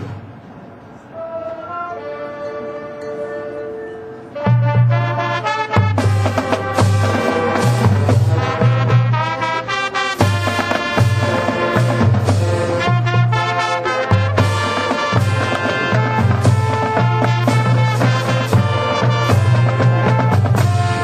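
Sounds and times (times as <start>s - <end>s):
marching band playing: 1.2s - 21.0s
sustained brass chords: 1.2s - 21.0s
drum strikes: 5.7s - 9.2s.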